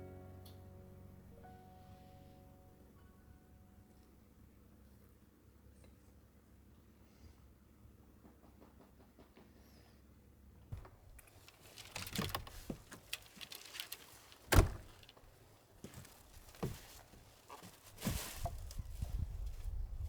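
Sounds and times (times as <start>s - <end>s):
rustling: 10.8s - 20.0s.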